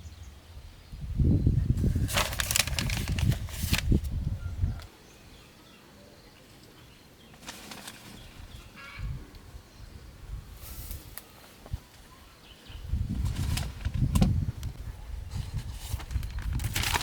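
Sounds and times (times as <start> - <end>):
rustling and bumping handling noise: 7.4 - 8.7.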